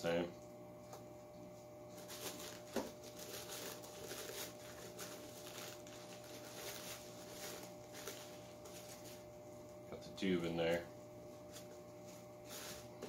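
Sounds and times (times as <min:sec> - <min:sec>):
paper and cardboard rustling: 0:01.9 - 0:09.3, 0:11.4 - 0:13.0.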